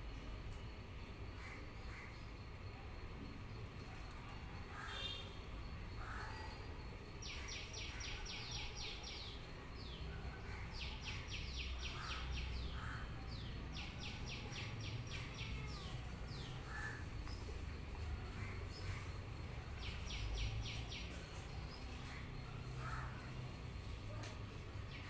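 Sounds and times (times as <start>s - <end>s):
bird singing a fast trill: 18.7s - 22.0s.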